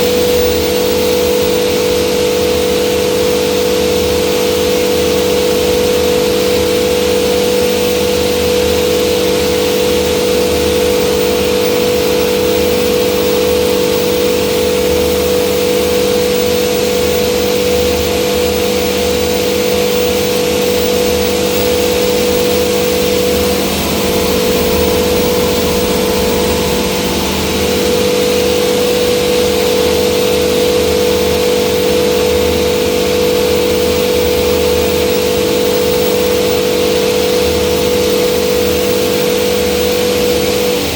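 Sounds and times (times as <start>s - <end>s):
hammer mill machine drone: 0.0s - 40.9s.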